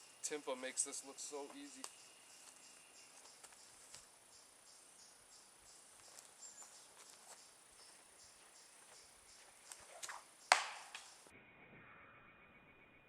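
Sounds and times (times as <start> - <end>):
insects chirping: 0.0 - 11.3
thin high whine: 11.3 - 13.0.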